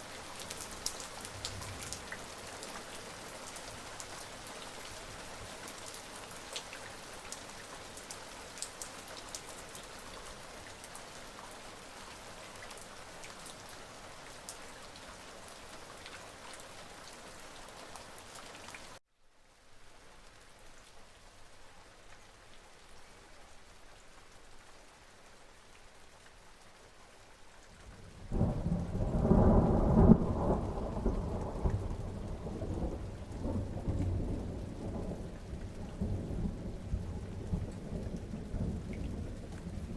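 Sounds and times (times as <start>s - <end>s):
steady rain with drop ticks: 0.0s - 39.9s
thunder rumbling: 28.3s - 39.9s.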